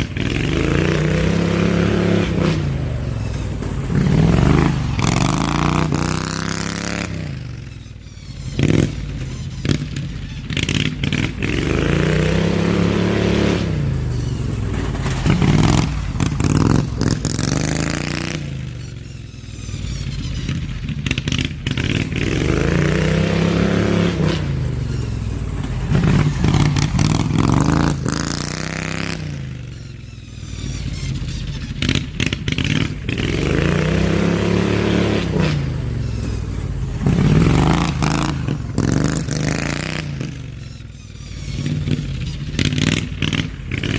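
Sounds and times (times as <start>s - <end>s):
riding mower engine revving: 0.0s - 43.9s.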